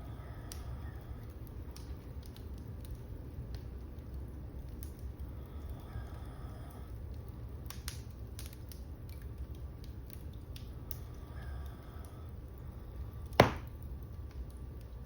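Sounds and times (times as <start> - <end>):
fire crackling: 0.0 - 15.0
low fire rumble: 0.0 - 15.0
loud wood pop: 13.4 - 13.7.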